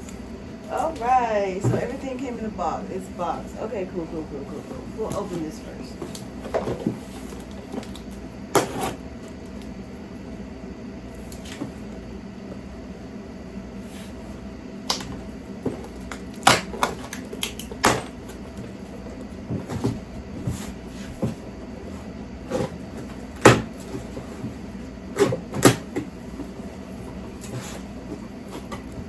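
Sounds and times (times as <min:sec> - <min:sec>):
steady low hum: 0:00.0 - 0:29.0
cardboard box contents clattering: 0:00.7 - 0:02.0.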